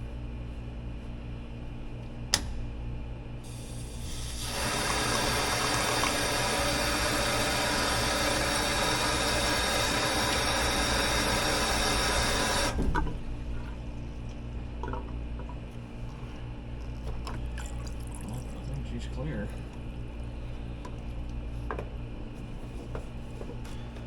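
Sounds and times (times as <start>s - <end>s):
water rushing through drain line: 3.5s - 13.8s, 16.9s - 18.9s.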